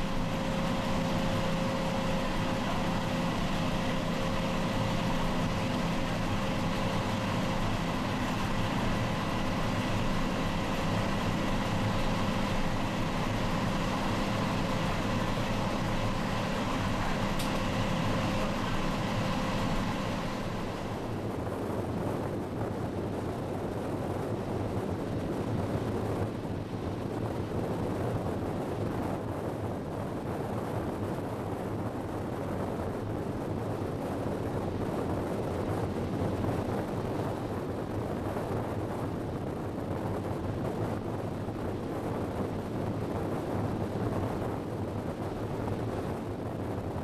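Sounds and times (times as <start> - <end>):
train running hum: 0.0 - 47.0
wheel rumble: 0.0 - 47.0
wind rushing at train window: 0.0 - 47.0.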